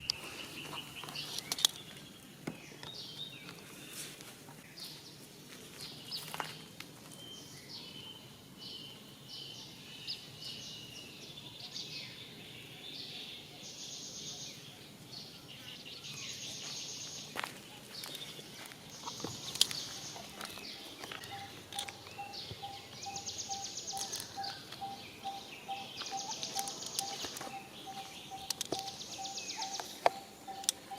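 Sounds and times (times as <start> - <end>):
high chirps and calls: 19.0 - 30.9
sharp clicks: 26.3 - 27.6, 28.4 - 30.9.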